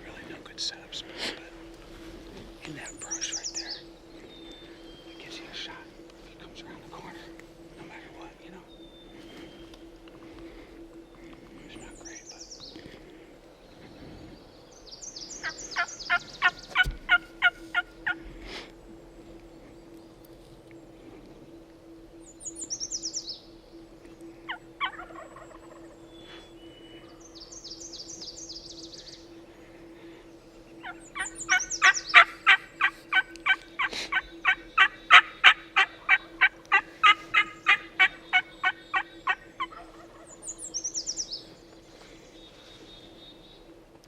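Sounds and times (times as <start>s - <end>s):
loud turkey yelps: 15.8s - 18.2s, 24.5s - 25.9s, 30.8s - 40.3s.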